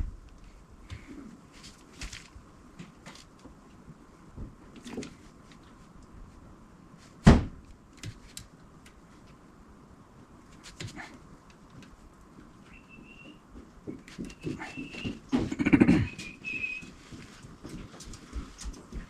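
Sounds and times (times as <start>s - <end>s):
loud thump: 7.2s - 7.6s.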